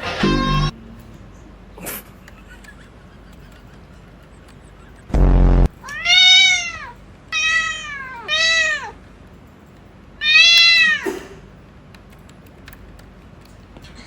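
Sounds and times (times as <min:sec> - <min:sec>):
cat meowing: 0:00.1 - 0:00.7, 0:05.7 - 0:09.0, 0:10.2 - 0:11.2
short low buzzing: 0:05.1 - 0:05.7.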